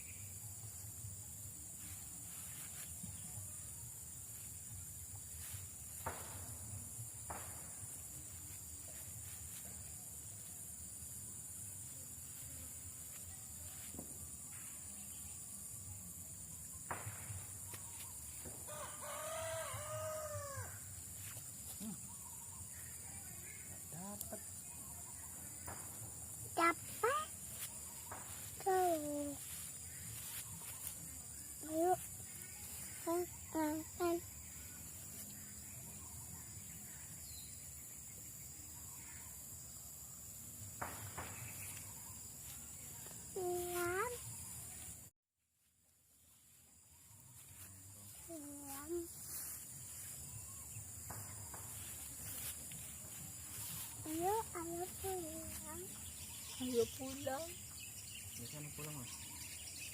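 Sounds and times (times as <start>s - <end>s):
insects chorus: 0.0s - 45.1s, 46.0s - 59.9s
rustle: 1.8s - 3.5s, 26.8s - 33.1s, 46.0s - 59.8s
rooster crowing: 18.7s - 20.9s.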